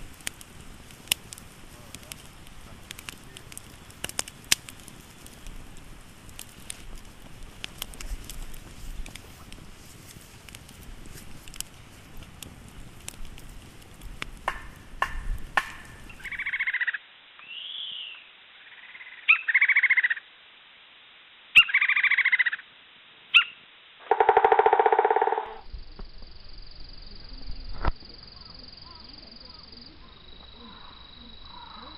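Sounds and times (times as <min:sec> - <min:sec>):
wood fire crackling and popping: 0:00.0 - 0:16.6.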